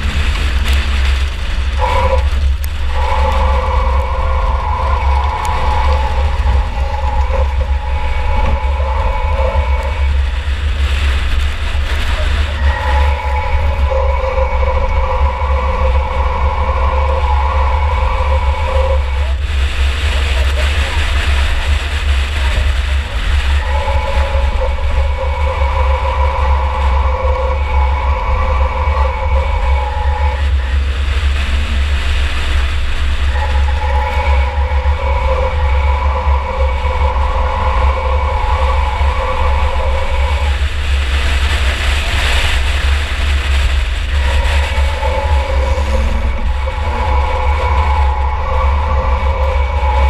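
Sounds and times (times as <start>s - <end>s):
race car engine rumble: 0.0s - 50.0s
road and rattle noise: 0.0s - 50.0s
steady whine: 0.0s - 50.0s.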